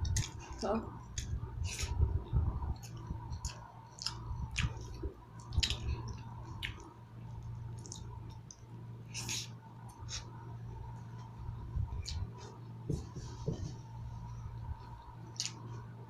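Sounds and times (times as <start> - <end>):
faint steady hum: 0.0 - 16.0
wet chewing: 2.8 - 6.9.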